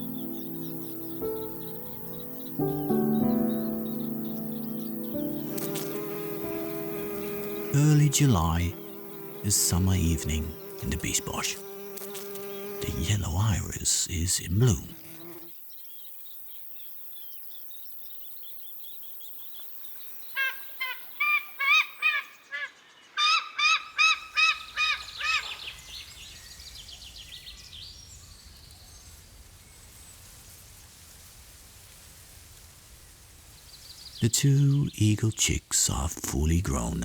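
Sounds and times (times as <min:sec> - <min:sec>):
faint high chirping: 0:00.0 - 0:11.5
bird calling loudly: 0:20.4 - 0:25.7.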